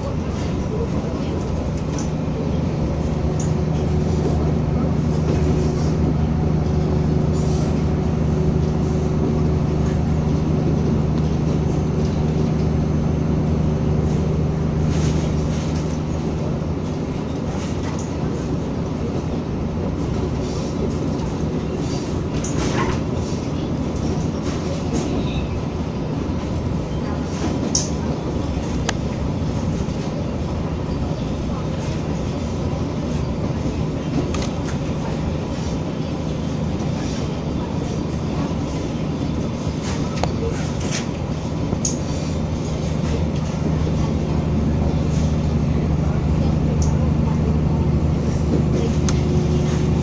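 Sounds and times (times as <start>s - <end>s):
rail clicks: 0.0s - 50.0s
railcar engine hum: 0.0s - 50.0s
wheels rumbling on rail: 0.0s - 50.0s.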